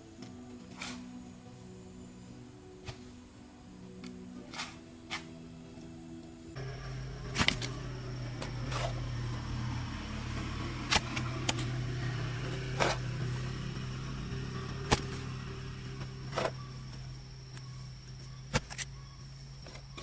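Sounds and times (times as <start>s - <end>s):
motor humming: 6.6s - 18.7s.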